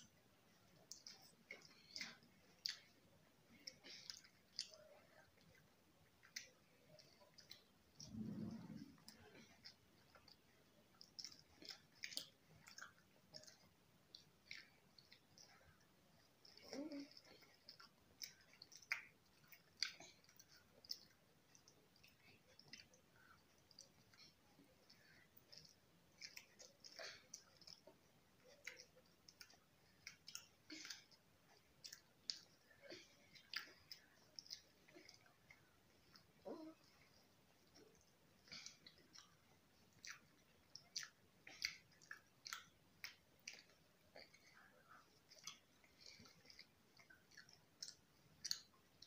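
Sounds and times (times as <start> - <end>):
faint close-up chewing: 0.0 - 49.0
small clicks and crackles: 0.0 - 49.0
wet mouth clicks: 6.2 - 15.7, 37.6 - 49.0.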